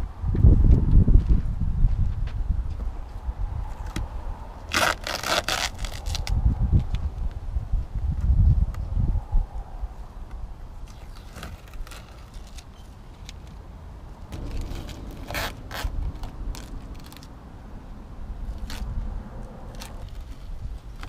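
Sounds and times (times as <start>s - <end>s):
adhesive tape being pulled off: 4.7s - 7.0s, 10.8s - 13.6s, 14.4s - 17.4s, 18.5s - 21.0s.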